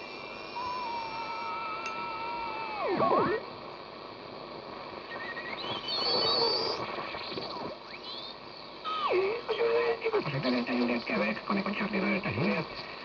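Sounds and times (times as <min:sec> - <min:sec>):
radio whistles gliding in pitch: 0:00.0 - 0:03.4, 0:05.0 - 0:09.4
radio static hiss: 0:00.0 - 0:13.0
garbled radio chirping tones: 0:05.0 - 0:11.6.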